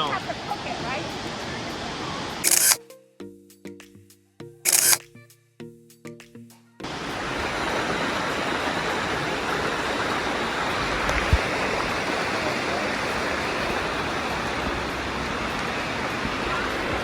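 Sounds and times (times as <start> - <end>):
water cascading over rocks: 6.8 - 17.0.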